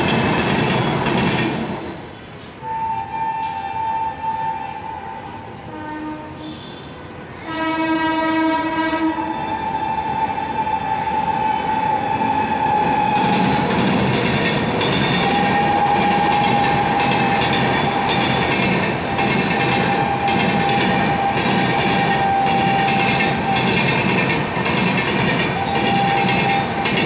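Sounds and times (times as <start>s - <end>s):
train horn: 2.6s - 13.6s, 15.2s - 23.9s, 25.4s - 27.0s
wheels clattering over rail joints: 13.1s - 27.0s.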